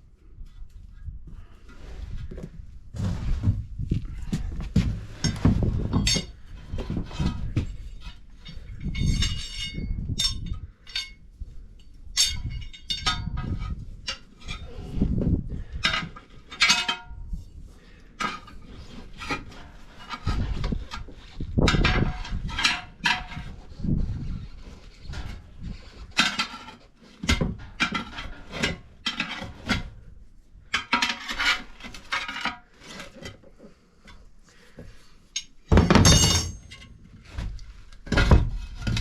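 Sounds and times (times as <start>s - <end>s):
metallic clanks and knocks: 35.4s - 39.0s
dull thuds: 35.7s - 36.7s.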